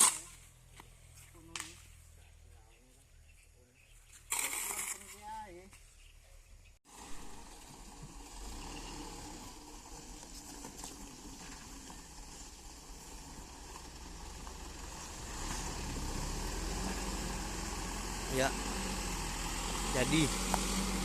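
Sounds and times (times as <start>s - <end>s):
vehicle engine running: 6.9s - 21.0s.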